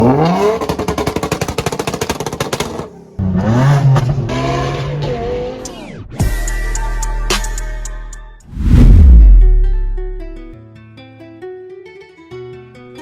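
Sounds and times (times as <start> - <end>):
music: 5.6 - 13.0
car engine revving: 8.5 - 10.5.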